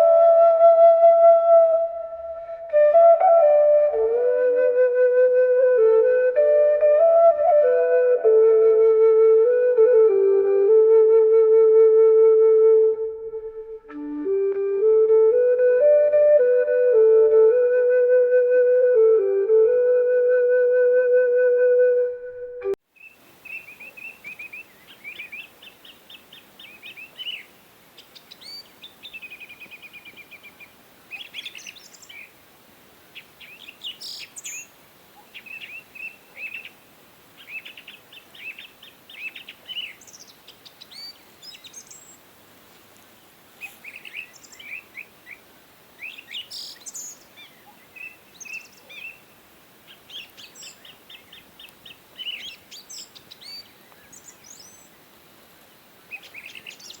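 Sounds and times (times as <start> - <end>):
faint background hiss: 0.0 - 57.0
small birds chirping: 22.9 - 32.4, 33.1 - 42.3, 43.6 - 55.1, 56.0 - 57.0.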